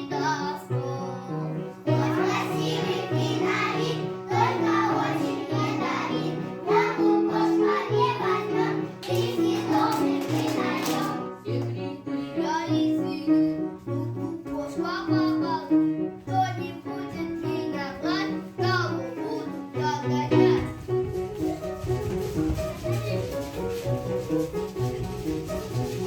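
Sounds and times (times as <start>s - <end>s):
children singing: 0.0s - 15.6s
children's song music: 0.0s - 26.0s.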